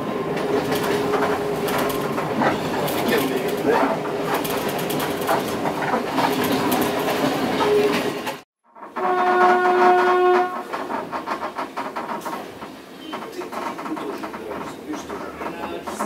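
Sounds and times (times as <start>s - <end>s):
train rumble inside carriage: 0.0s - 16.0s
train horn: 8.8s - 10.8s.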